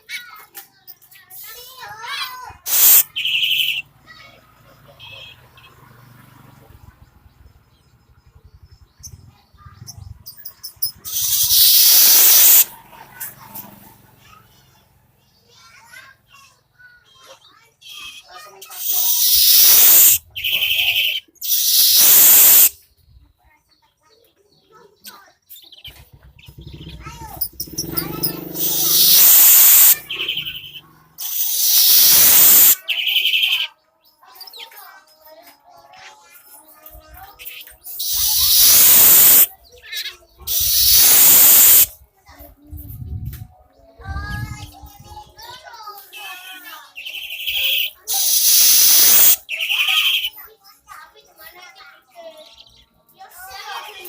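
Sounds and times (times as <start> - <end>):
young bird chirping: 2.0 - 3.9, 6.8 - 12.7, 17.2 - 34.8, 36.8 - 45.0, 46.0 - 50.6
loud rushing hiss: 2.7 - 3.1, 11.2 - 12.7, 19.0 - 20.2, 21.4 - 22.7, 28.6 - 30.0, 31.3 - 32.8, 38.1 - 39.5, 40.5 - 41.9, 48.2 - 49.4.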